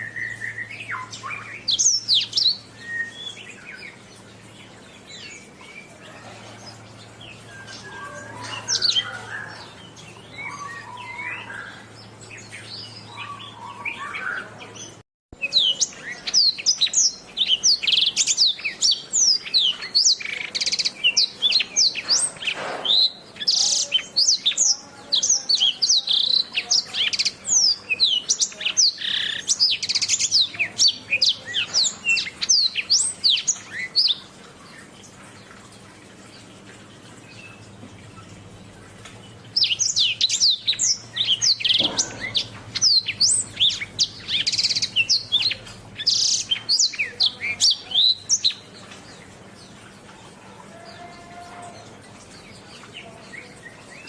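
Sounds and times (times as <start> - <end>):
canary singing: 0.0 - 34.9, 37.1 - 54.0
low steady hum: 0.0 - 54.0.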